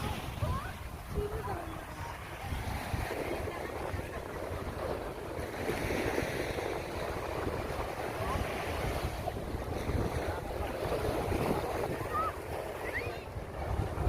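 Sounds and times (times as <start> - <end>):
sea surf washing onto beach: 0.0 - 14.0
wind gusting on microphone: 0.0 - 14.0.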